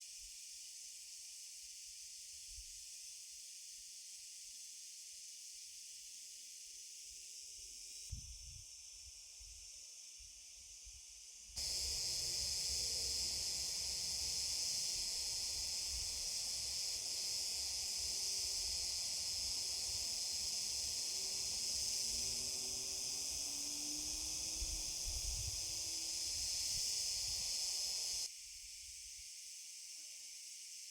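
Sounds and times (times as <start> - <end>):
insect chorus chirring: 11.6 - 28.3
wind rumble on microphone: 24.6 - 25.7.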